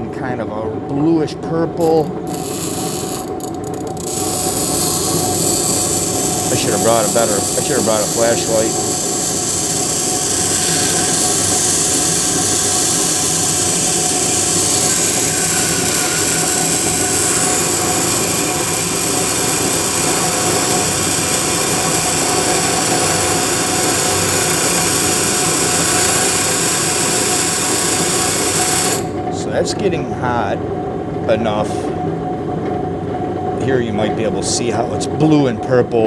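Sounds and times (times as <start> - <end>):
steel rasping on grinding wheel: 1.8 - 29.3
bench grinder whine: 1.8 - 29.9.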